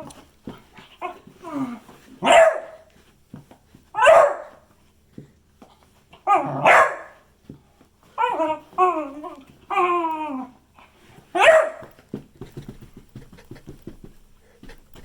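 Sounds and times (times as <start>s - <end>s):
dog barking: 2.2s - 2.9s, 4.0s - 4.7s, 6.3s - 7.2s, 11.4s - 12.0s.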